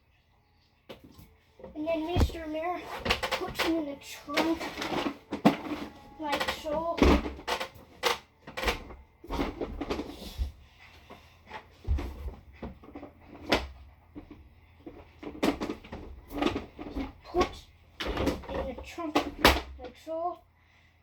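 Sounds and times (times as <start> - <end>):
toys knocking and clicking: 2.1 - 10.0.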